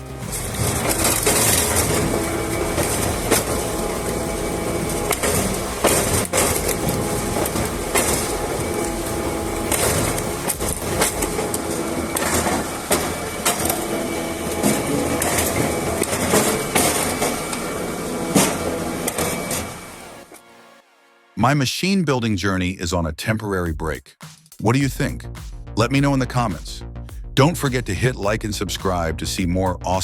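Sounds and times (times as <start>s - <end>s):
log splitter mechanical drone: 0.0s - 20.4s.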